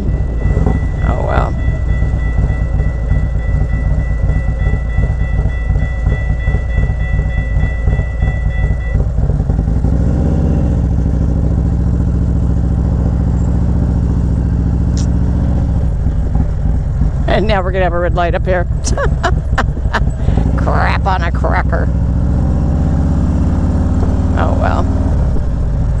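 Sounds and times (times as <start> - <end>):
thin high tone: 0.0 - 9.0
motorcycle engine running: 0.0 - 26.0
wind buffeting: 0.0 - 26.0.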